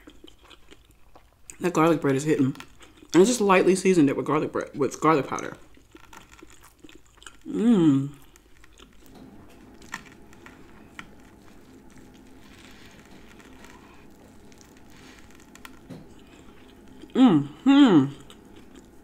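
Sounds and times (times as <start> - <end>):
close-up chewing: 0.0 - 3.6, 4.9 - 19.0
soft crunches of toasted bread: 5.5 - 7.5, 8.1 - 19.0.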